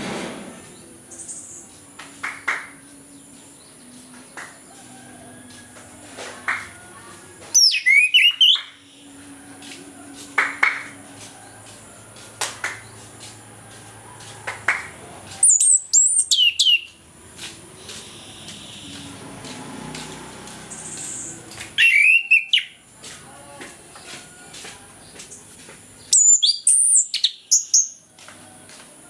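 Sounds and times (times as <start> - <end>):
thrush singing whistles: 7.6 - 9.2, 15.4 - 17.0, 18.0 - 19.2, 20.7 - 22.8, 26.1 - 28.0.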